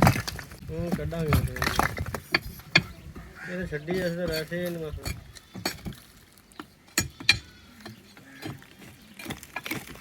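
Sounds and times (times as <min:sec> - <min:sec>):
demolition knocks on brick: 0:00.0 - 0:02.9.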